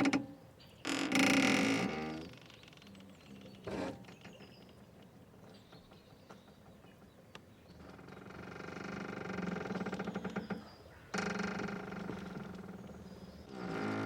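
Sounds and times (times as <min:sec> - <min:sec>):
mooring rope creaking: 0:00.0 - 0:04.9, 0:07.8 - 0:14.0.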